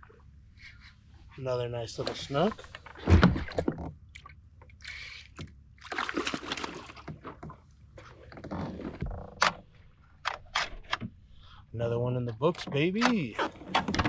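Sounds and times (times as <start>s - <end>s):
water splashing and sloshing: 1.9s - 11.3s.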